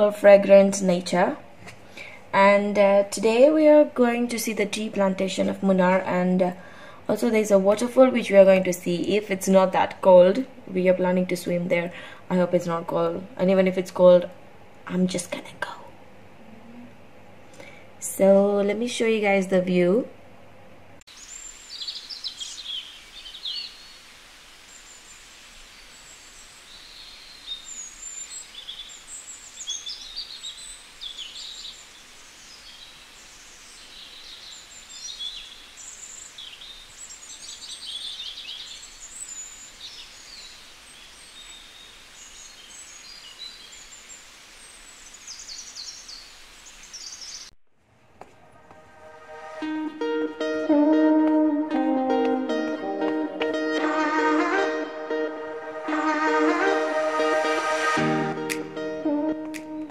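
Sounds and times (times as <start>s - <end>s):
faint background hiss: 0.0s - 59.9s
birds chirping and trilling: 21.1s - 24.0s, 25.8s - 47.5s.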